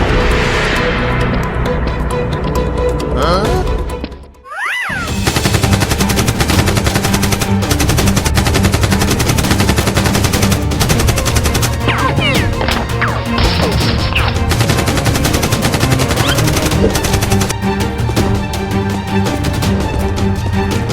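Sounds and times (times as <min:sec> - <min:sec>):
background music: 0:00.0 - 0:20.9
rapid automatic gunfire: 0:05.2 - 0:12.4, 0:13.4 - 0:17.5.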